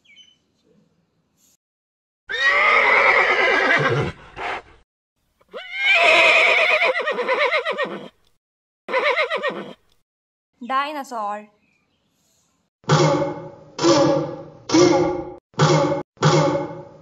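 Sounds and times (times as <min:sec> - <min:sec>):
horse whinnying: 0:02.3 - 0:04.6, 0:05.5 - 0:08.2, 0:08.9 - 0:09.8.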